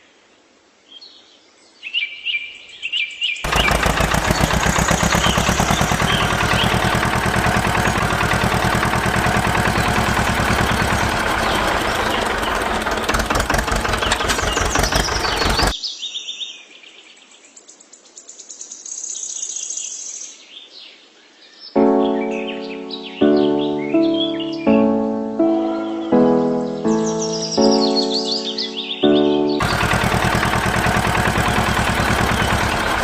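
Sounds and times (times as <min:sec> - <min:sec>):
birds chirping: 0:03.4 - 0:15.8, 0:21.7 - 0:33.0
machine rattling rapidly: 0:03.5 - 0:15.7, 0:29.6 - 0:33.0.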